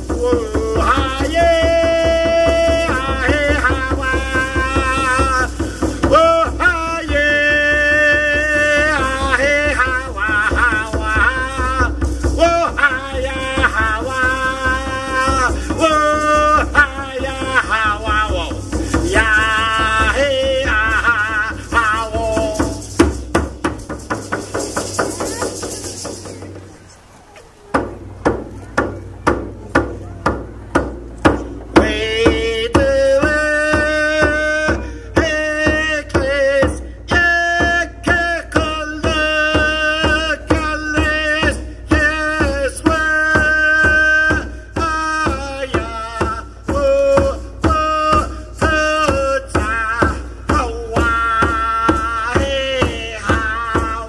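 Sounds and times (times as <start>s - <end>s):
steady drum beat: 0.0s - 26.8s, 27.7s - 54.0s
voices singing: 24.8s - 54.0s.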